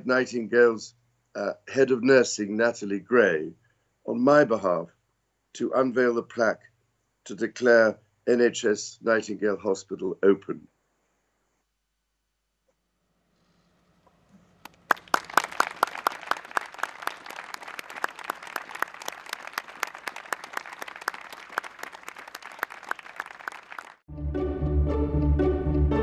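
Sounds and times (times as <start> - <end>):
group of people applauding: 14.6 - 24.1.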